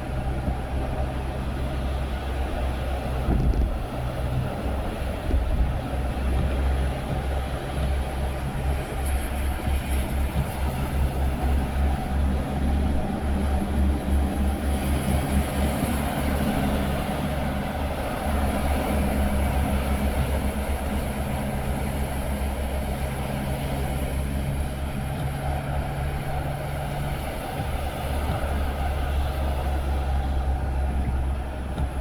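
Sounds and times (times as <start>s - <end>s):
faint engine hum: 0.0s - 32.0s
road rumble inside a car: 0.0s - 32.0s.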